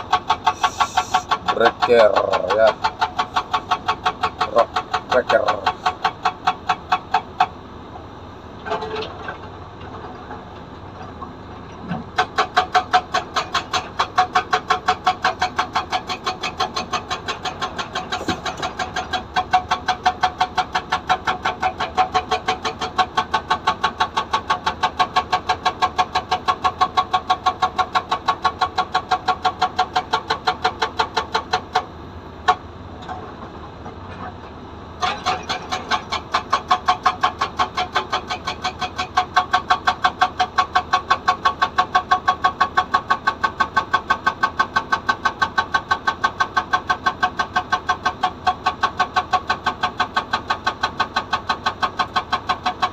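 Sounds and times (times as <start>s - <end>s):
excavator engine running: 0.0s - 52.9s
hydraulic breaker hammering stone: 12.1s - 31.9s, 35.0s - 52.9s.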